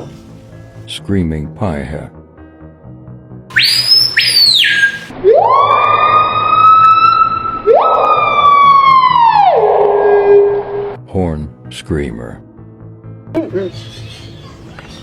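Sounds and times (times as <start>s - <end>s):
bird loud whistled calls: 3.5s - 5.1s.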